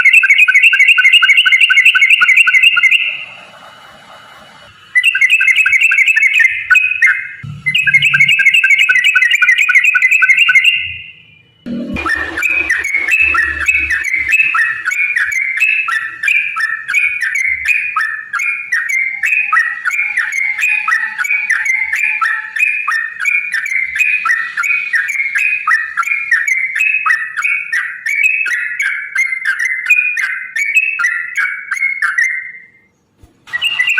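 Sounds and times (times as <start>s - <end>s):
bulbul singing bubbly notes: 5.1s - 11.1s, 11.7s - 16.5s.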